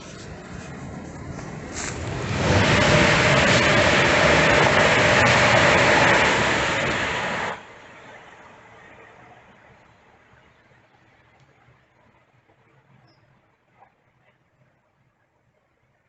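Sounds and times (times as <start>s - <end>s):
train passing at speed: 0.0s - 11.0s
faint rumble: 0.0s - 16.0s.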